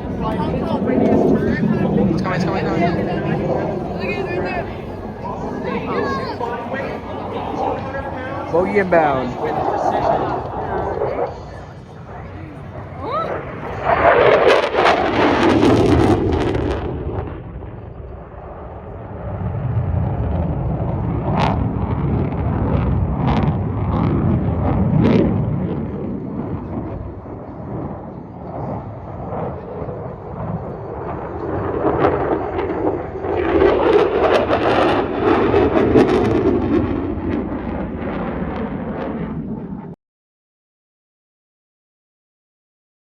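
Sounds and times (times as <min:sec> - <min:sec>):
jet fighter roaring past: 0:00.0 - 0:40.0.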